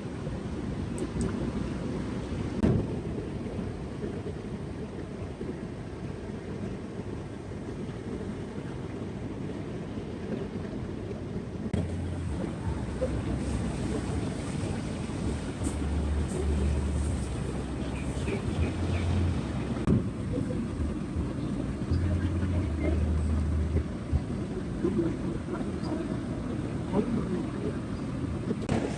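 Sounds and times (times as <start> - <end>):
wind buffeting microphone: 11.6 - 28.9
low rumble: 11.8 - 28.9
surf: 11.8 - 28.9.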